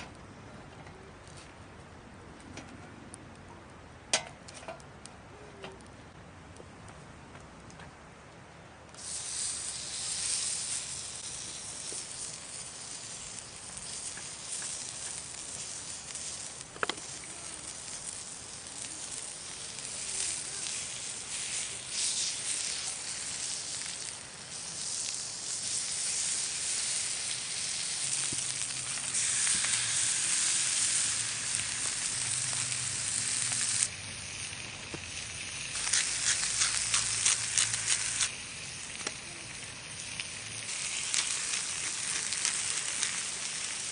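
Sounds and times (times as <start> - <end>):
sharp crackling pops: 8.8 - 43.9
meat sizzling on a griddle: 9.0 - 43.9.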